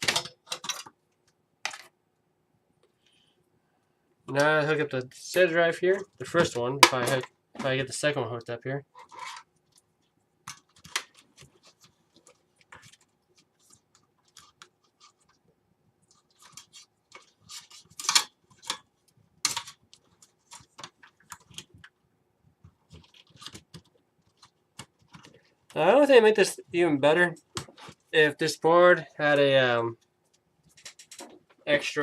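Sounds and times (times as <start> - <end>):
hands handling plastic connectors: 16.1 - 25.8.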